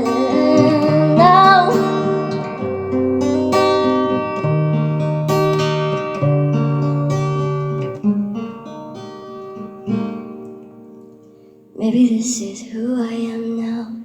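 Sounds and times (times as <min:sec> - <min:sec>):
woman singing: 0:00.0 - 0:02.6, 0:11.8 - 0:14.0
acoustic guitar chords: 0:00.0 - 0:12.4.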